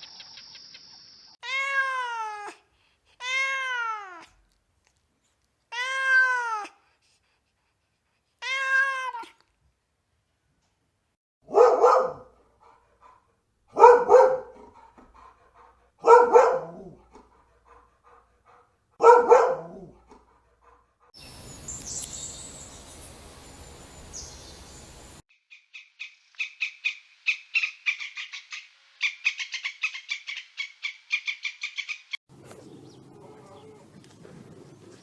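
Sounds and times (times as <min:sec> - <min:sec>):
rapid repeated bird chirps: 0:00.0 - 0:01.4, 0:24.2 - 0:33.0
dog barking: 0:11.4 - 0:15.0, 0:15.6 - 0:20.8
background hiss: 0:21.2 - 0:25.2
high whistled bird calls: 0:21.2 - 0:32.2.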